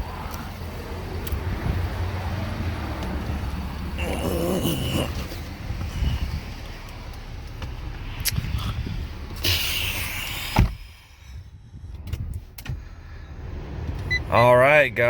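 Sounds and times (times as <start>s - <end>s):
low rumbling background: 0.0s - 15.0s
car door shutting: 9.3s - 11.0s.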